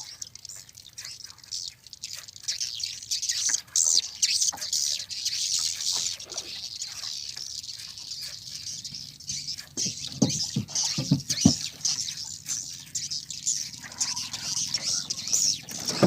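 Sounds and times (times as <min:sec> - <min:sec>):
swiftlets twittering: 0:01.5 - 0:16.0
low thumps: 0:09.8 - 0:12.2.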